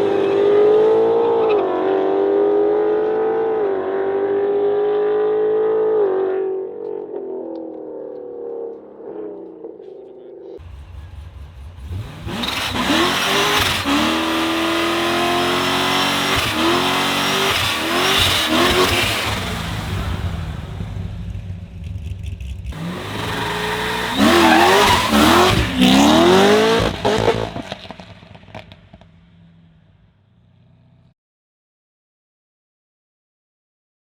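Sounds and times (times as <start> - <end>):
car engine accelerating: 0.0 - 5.8, 10.6 - 31.1.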